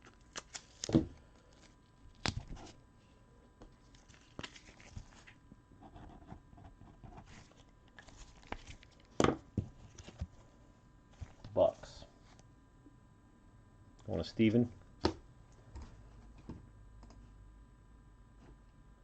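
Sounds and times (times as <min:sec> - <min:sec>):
faint rustling of plastic sleeves: 0:00.0 - 0:05.5, 0:07.2 - 0:12.5.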